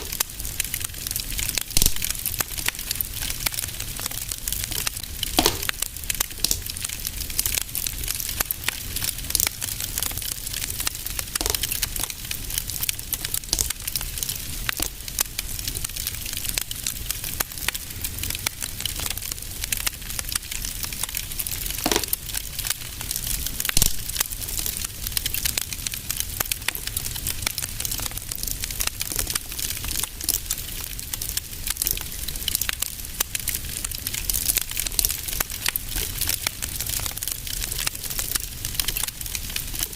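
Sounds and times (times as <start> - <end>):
loud fire pops: 0.0 - 39.9
wood fire crackling: 0.0 - 39.9.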